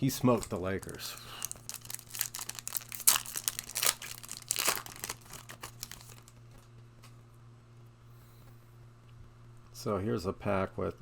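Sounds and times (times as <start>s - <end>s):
plastic wrapper crinkling and tearing: 0.0s - 6.6s.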